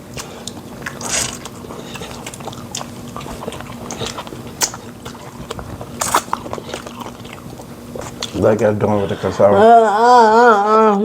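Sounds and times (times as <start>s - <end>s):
wet mouth clicks and chewing: 0.2s - 8.4s.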